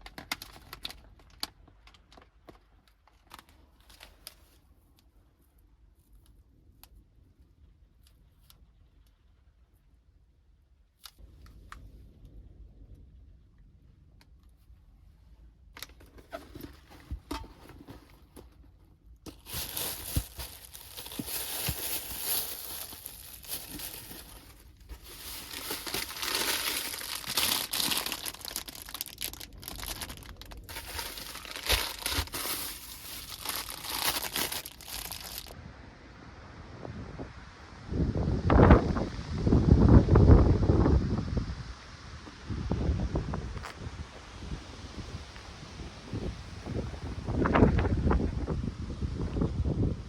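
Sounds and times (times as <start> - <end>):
plastic or paper crinkling: 0.0 - 4.6, 15.8 - 18.5, 19.3 - 35.6.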